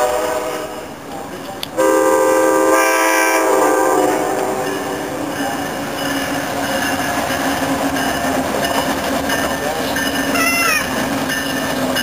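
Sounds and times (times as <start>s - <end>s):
locomotive horn: 0.0s - 0.9s, 1.8s - 5.1s
train engine and running noise: 0.0s - 12.0s.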